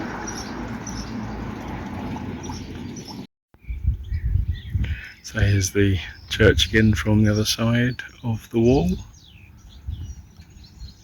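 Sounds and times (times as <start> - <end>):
low uneven rumble: 0.0 - 3.3
bird chirps: 0.1 - 5.4, 6.0 - 11.0.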